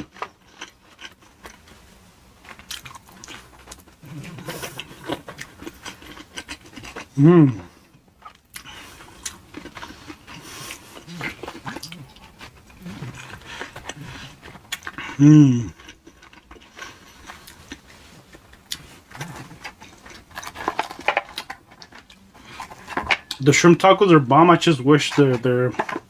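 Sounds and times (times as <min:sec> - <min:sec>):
chewing crunchy food: 0:00.0 - 0:23.4
person humming mm: 0:07.2 - 0:07.7, 0:15.2 - 0:15.7.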